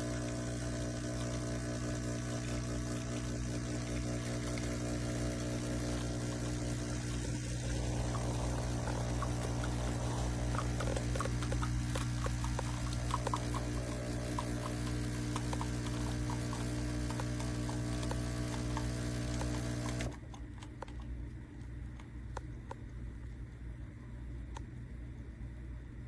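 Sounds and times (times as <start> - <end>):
espresso machine pump buzzing: 0.0 - 20.2.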